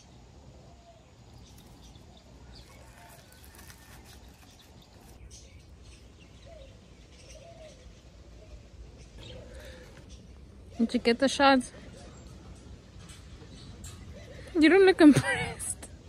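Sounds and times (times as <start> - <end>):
low bird coos: 6.4 - 11.0, 13.8 - 14.6.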